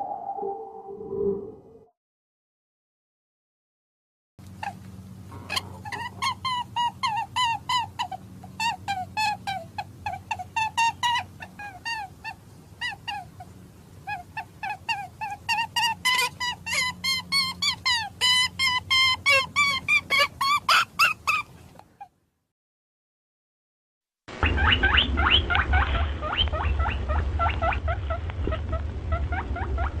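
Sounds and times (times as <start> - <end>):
steady low hum: 4.4 - 20.2, 24.3 - 30.0
animal squeaky calls: 4.6 - 22.1, 24.4 - 30.0.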